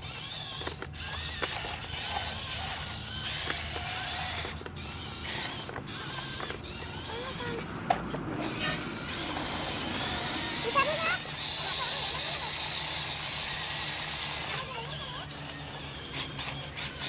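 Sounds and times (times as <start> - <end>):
plastic parts creaking and clicking: 0.0 - 9.5
toy truck electric motor humming: 0.0 - 17.0.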